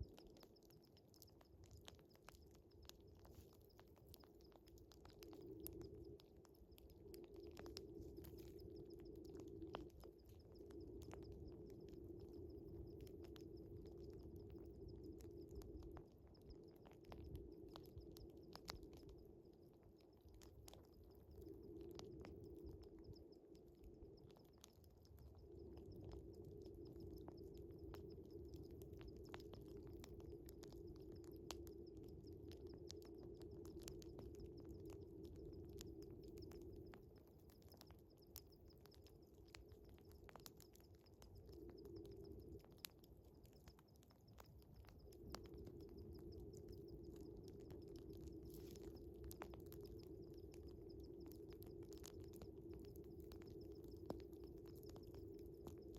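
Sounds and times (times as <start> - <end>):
low steady hum: 0.0 - 43.7
crickets chirring: 0.0 - 55.9
wood fire crackling and popping: 0.0 - 55.9.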